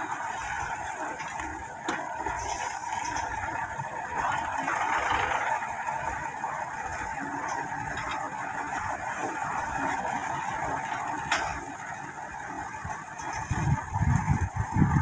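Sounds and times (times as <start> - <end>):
truck engine droning: 0.0 - 15.0.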